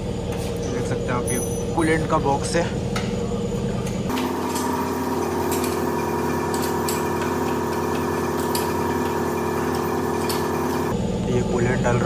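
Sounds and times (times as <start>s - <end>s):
machine humming: 4.1s - 11.0s.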